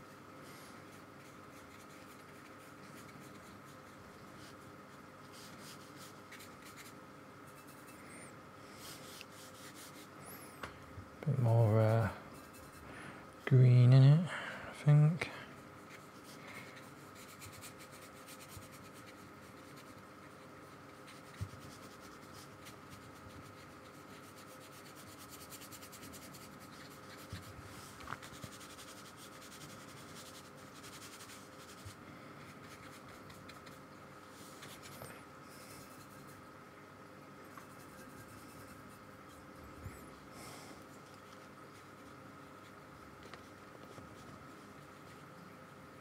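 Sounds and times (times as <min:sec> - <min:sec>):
faint steady hum: 0:00.0 - 0:46.0
paintbrush scratching on paper: 0:00.8 - 0:08.1, 0:08.7 - 0:10.4, 0:11.3 - 0:12.9, 0:15.6 - 0:36.4, 0:37.4 - 0:40.0.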